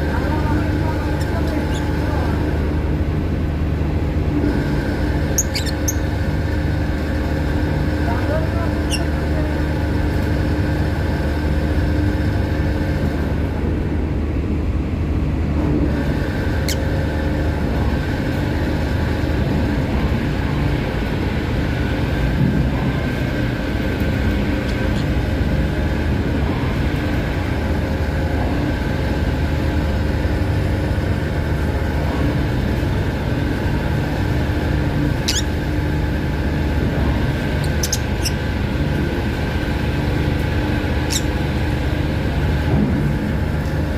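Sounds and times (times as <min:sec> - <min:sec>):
ferry engine humming: 0:00.0 - 0:43.9
lovebird chirps: 0:05.4 - 0:06.0, 0:37.6 - 0:38.4, 0:41.1 - 0:41.3.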